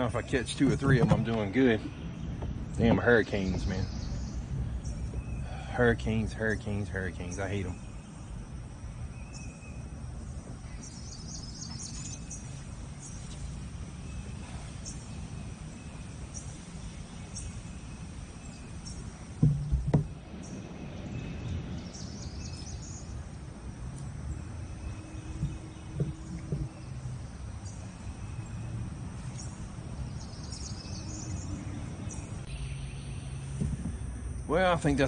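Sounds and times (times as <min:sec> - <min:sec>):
insects chirping: 0:00.0 - 0:35.0
low rumble: 0:00.1 - 0:07.2
sharp knocks: 0:19.4 - 0:20.2, 0:25.3 - 0:26.8, 0:33.5 - 0:34.0.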